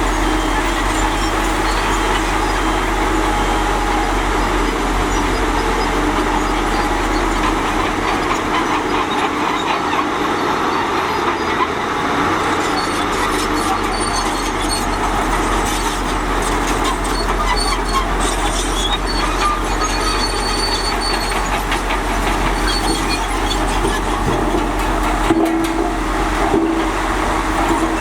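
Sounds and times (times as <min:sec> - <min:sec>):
diesel engine running: 0:00.0 - 0:28.0
steel tracks clattering: 0:14.8 - 0:28.0
thin high squeal: 0:22.5 - 0:24.6.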